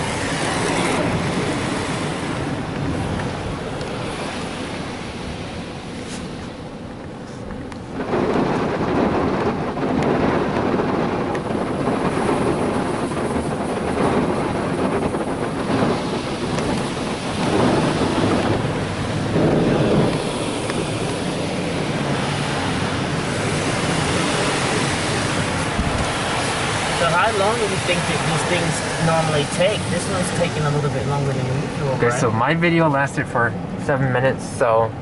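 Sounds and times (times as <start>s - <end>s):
car wash jets spraying water: 11.4s - 33.2s.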